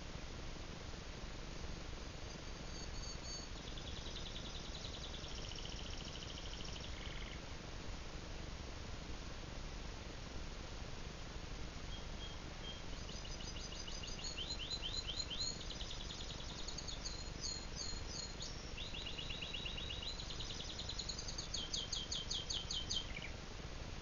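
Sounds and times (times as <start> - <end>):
canary singing: 2.3 - 7.4, 11.9 - 23.4.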